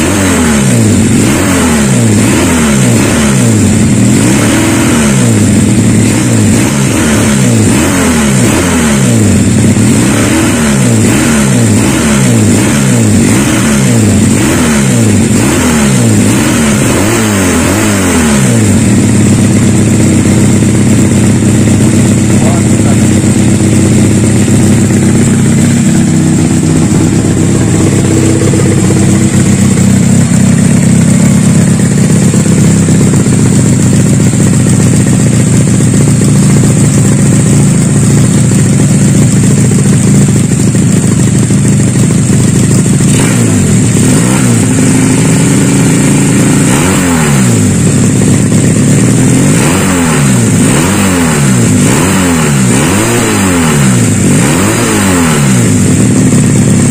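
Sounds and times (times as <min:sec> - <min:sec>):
motorcycle engine idling and revving: 0:00.0 - 0:56.9.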